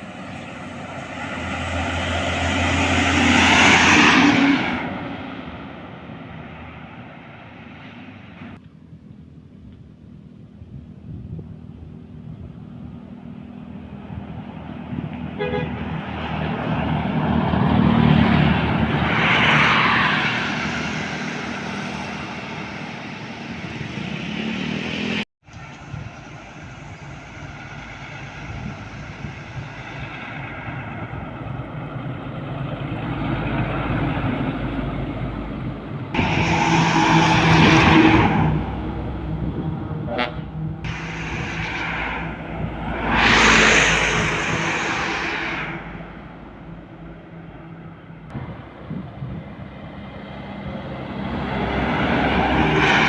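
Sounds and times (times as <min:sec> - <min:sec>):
heavy trucks passing: 0:00.0 - 0:08.6, 0:11.1 - 0:53.0
loud truck horn: 0:15.3 - 0:16.3, 0:39.9 - 0:41.3.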